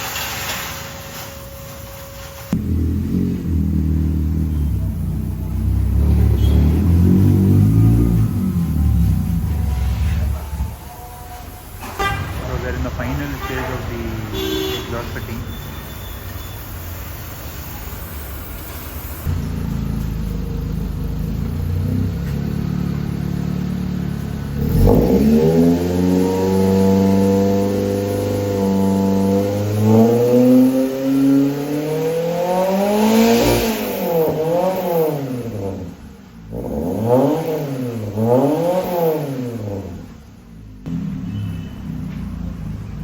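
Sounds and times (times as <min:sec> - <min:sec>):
car engine revving: 0:02.5 - 0:11.0, 0:19.2 - 0:43.0.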